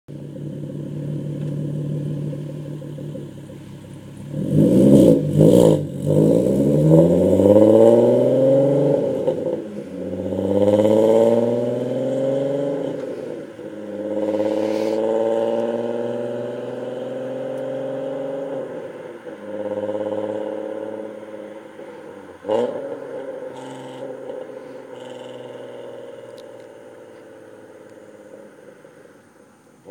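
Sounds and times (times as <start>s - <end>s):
exhaust cracks: 0.1s - 7.5s, 12.9s - 16.7s
car engine accelerating: 0.1s - 29.9s.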